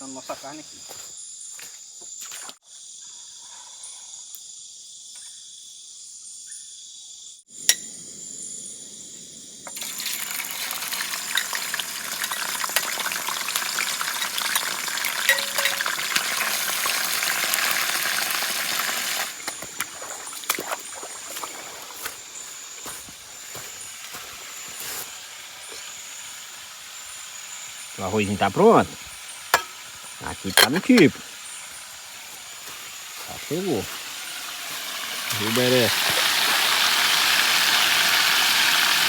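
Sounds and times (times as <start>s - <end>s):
insects droning: 0.0s - 39.0s
meat sizzling in hot oil: 9.7s - 39.0s.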